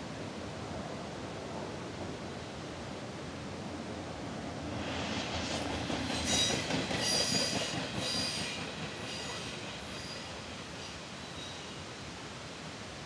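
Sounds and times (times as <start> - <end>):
freight train rumble: 0.0 - 13.0
steel wheels squealing: 6.0 - 11.8.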